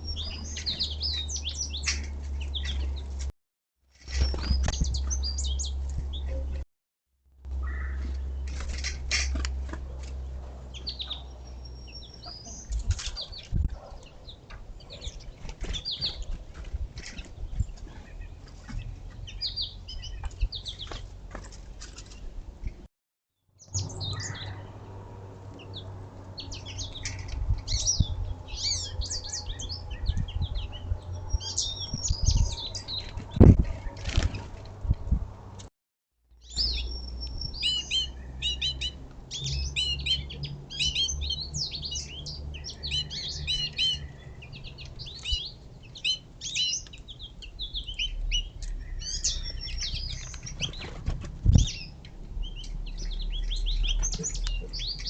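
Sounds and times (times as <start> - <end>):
small songbirds chirping: 0.0 - 3.3, 4.0 - 6.6, 7.5 - 22.8, 23.6 - 34.6, 36.3 - 55.0
wing flutters: 33.0 - 34.8.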